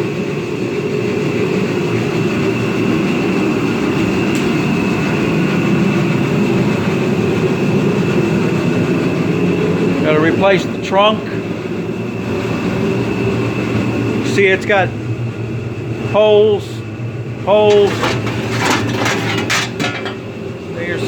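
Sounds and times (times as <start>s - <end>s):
machine rumble: 11.4s - 21.0s.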